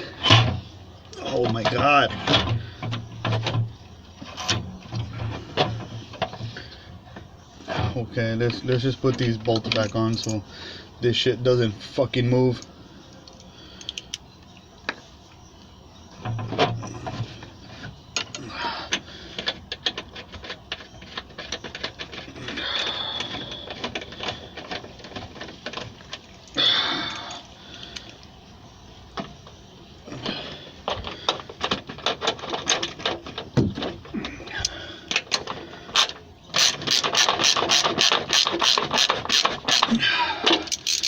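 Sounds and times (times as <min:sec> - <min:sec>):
metal tools clicking and clinking: 0:08.7 - 0:10.4, 0:40.5 - 0:41.0.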